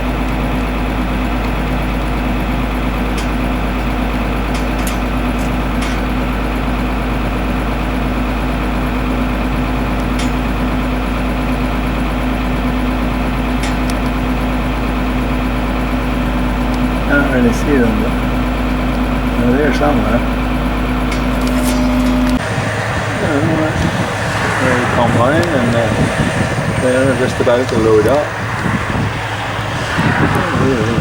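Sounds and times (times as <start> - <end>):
tractor engine running: 0.0 - 31.0
light clicks and rattles: 3.0 - 6.3.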